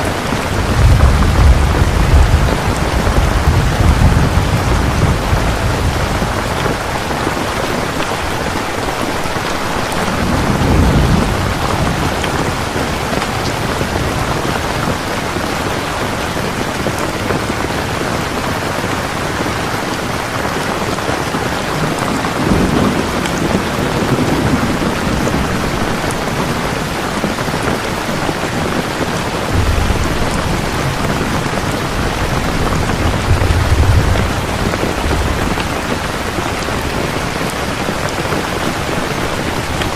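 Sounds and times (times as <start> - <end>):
heavy rain falling: 0.0 - 39.9
low rolls of thunder: 0.1 - 7.6, 9.3 - 17.6, 21.7 - 27.9, 28.6 - 39.9.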